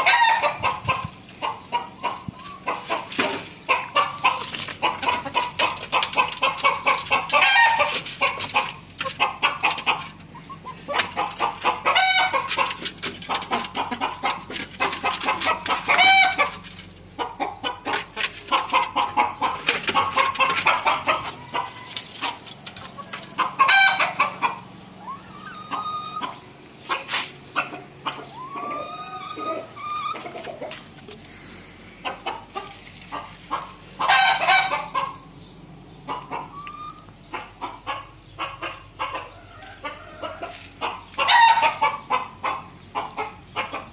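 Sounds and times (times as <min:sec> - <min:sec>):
chickens clucking: 0:00.0 - 0:43.9
rooster crowing: 0:39.3 - 0:41.8.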